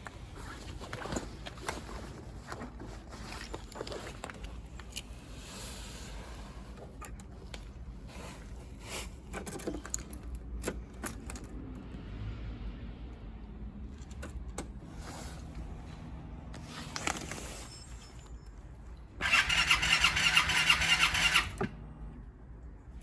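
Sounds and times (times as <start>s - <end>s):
scooter engine idling: 19.2s - 22.0s.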